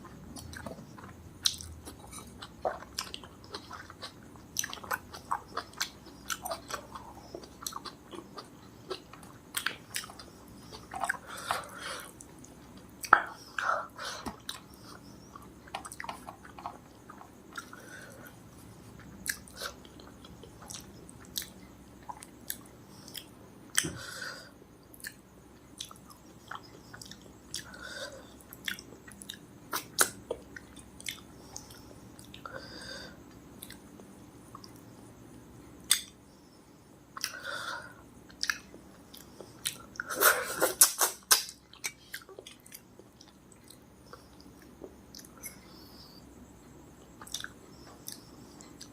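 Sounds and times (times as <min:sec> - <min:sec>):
person chewing food: 0:00.0 - 0:32.6, 0:33.2 - 0:34.9, 0:37.2 - 0:48.9
wet mouth clicks and smacks: 0:35.9 - 0:36.2, 0:38.3 - 0:43.8.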